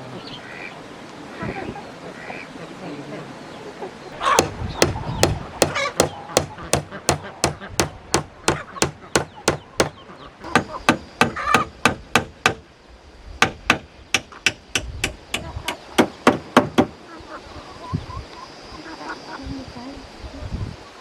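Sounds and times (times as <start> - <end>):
hand tool striking wood: 4.3 - 12.6, 13.4 - 16.9.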